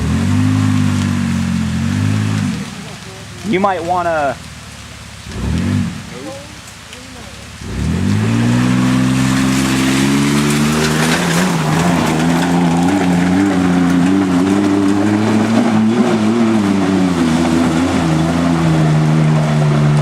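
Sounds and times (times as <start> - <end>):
pickup engine revving hard: 0.0 - 2.8, 5.3 - 6.1, 7.6 - 20.0
tyres spinning in mud: 5.3 - 20.0.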